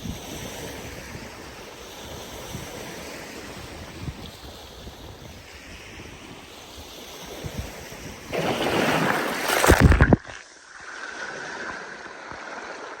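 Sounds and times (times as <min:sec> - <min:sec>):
wind on microphone: 0:00.0 - 0:10.3
surf washing on a beach: 0:00.0 - 0:13.0.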